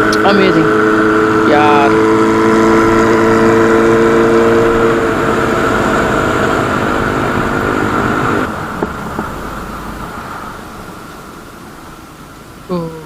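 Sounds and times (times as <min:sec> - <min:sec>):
motorcycle engine: 0:00.0 - 0:12.7
wind and road rush: 0:00.0 - 0:12.7.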